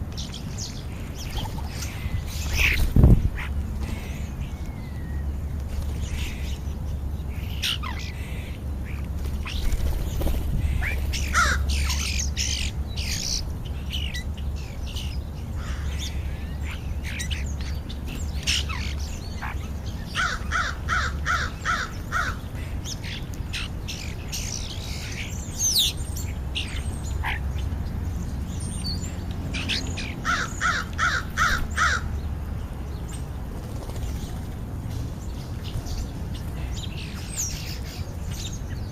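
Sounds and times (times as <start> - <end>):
starlings whistling and chattering: 0.2 - 32.0
crows cawing: 10.8 - 11.8, 15.6 - 16.1, 20.2 - 22.4, 30.2 - 32.1.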